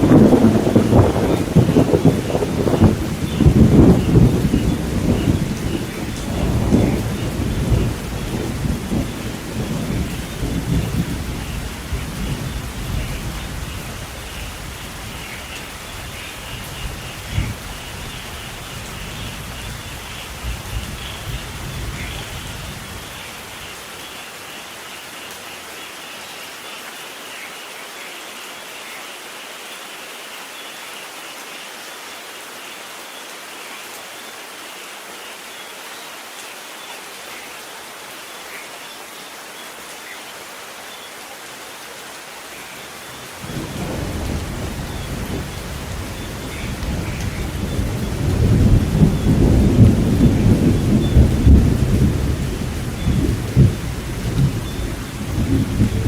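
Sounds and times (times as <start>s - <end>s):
low rumble of thunder: 0.0s - 23.6s, 43.1s - 56.0s
steady rain falling: 0.0s - 56.0s.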